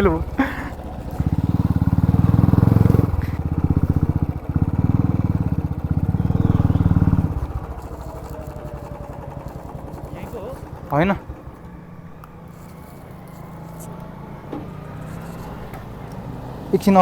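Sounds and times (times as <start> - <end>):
scooter engine revving: 0.0 - 17.0.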